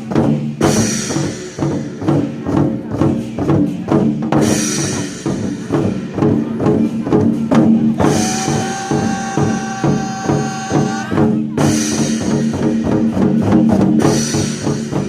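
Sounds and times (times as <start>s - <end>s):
war drums beating: 0.0s - 15.0s
loud backing music: 3.8s - 13.0s.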